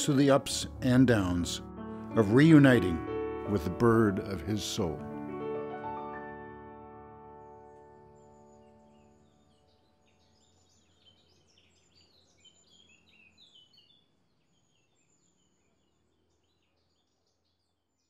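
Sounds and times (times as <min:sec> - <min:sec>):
small birds chirping and twittering: 0:07.3 - 0:18.0.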